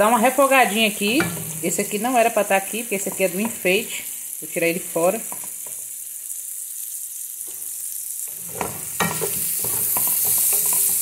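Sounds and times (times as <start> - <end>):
food sizzling in oil: 0.0 - 11.0
spoon stirring and scraping pan: 0.7 - 4.0, 5.2 - 5.9, 8.3 - 11.0.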